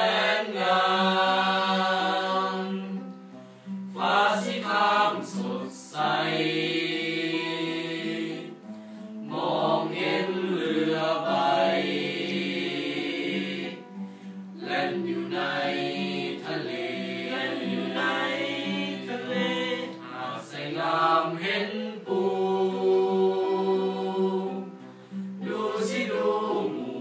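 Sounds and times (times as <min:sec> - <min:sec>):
choir singing: 0:00.0 - 0:03.1, 0:03.9 - 0:14.0, 0:14.6 - 0:27.0
singers breathing: 0:03.3 - 0:03.9, 0:08.6 - 0:09.2, 0:13.9 - 0:14.5, 0:24.8 - 0:25.4.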